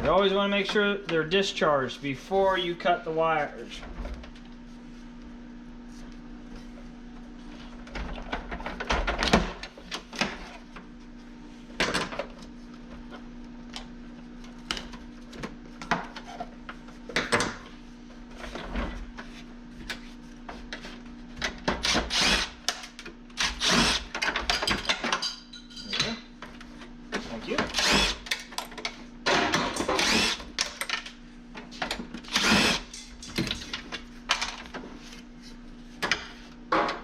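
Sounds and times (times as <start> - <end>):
steady low hum: 0.0 - 24.2
tools clicking and rattling on metal: 24.1 - 26.2.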